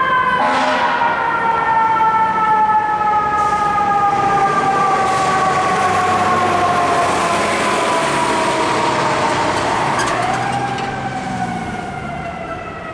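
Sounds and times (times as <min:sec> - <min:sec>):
fire truck siren wailing: 0:00.0 - 0:12.9
truck engine rumble: 0:03.5 - 0:12.9.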